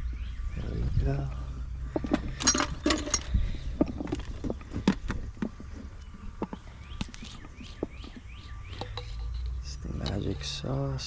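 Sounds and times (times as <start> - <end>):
tools clicking and knocking: 1.9 - 5.6.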